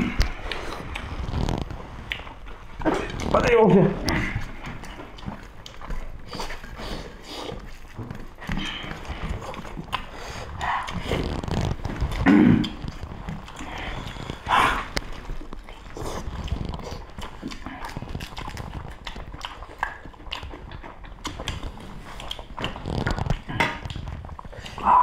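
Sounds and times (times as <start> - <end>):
people chewing with wet smacking: 0.0 - 25.0.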